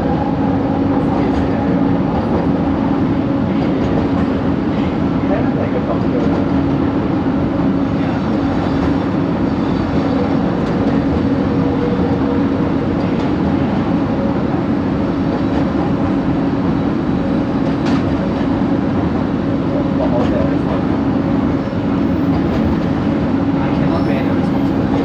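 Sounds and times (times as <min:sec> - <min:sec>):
train rolling rumble: 0:00.0 - 0:25.0.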